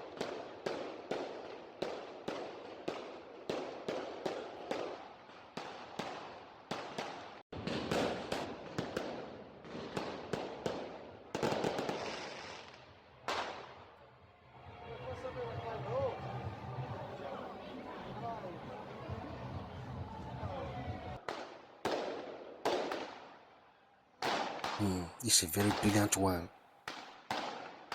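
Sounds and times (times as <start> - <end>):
fireworks banging: 0.0 - 13.8, 21.2 - 23.3, 24.2 - 27.9
fireworks crackling: 0.0 - 13.9, 24.2 - 27.9.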